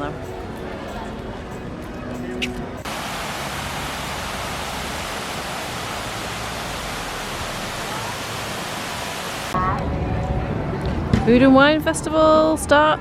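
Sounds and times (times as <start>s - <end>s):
falling water rushing: 2.8s - 9.6s.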